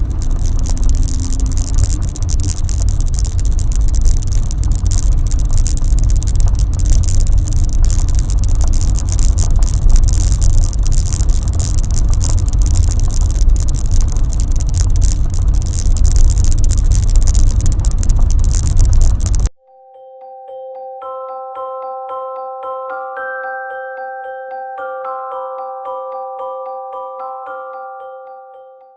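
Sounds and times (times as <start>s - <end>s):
car engine and road rumble: 0.0s - 19.5s
small clicks and knocks: 0.0s - 19.5s.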